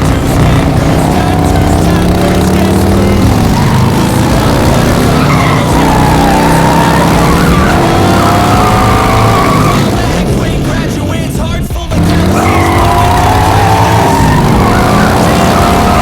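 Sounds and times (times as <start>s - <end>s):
race car engine revving: 0.0s - 16.0s
tyre squeal: 3.1s - 10.1s, 12.3s - 16.0s.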